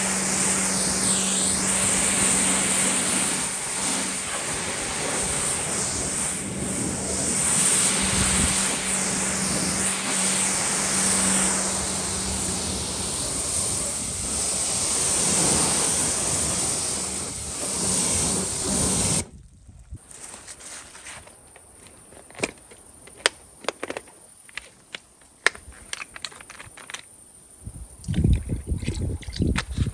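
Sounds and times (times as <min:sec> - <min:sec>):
pressure washer spraying water: 0:00.0 - 0:19.3
pump humming: 0:00.0 - 0:19.3.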